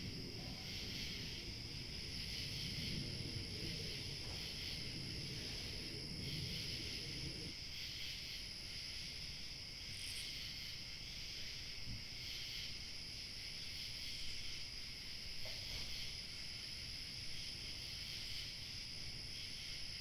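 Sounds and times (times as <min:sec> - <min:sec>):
light wind rumble: 0:00.0 - 0:07.6
crickets chirping: 0:00.0 - 0:20.0.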